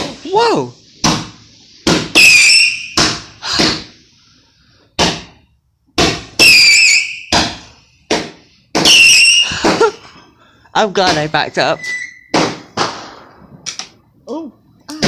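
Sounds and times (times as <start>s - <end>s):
firework bangs: 1.0s - 3.9s, 6.0s - 10.0s, 12.3s - 13.6s
firework whistle: 2.1s - 3.0s, 6.4s - 7.4s, 8.8s - 9.6s.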